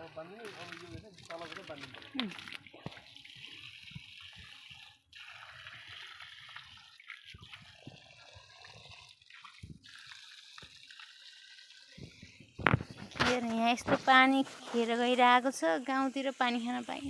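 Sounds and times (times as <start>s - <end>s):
water running from a tap: 0.0s - 17.0s.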